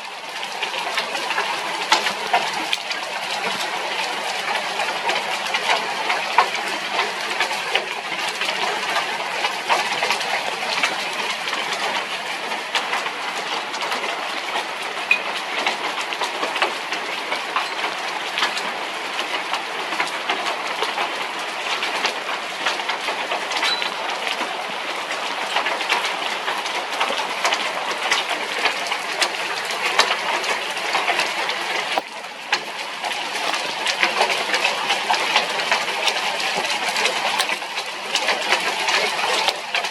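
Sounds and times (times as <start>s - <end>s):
heavy rain pelting down: 0.0s - 30.9s.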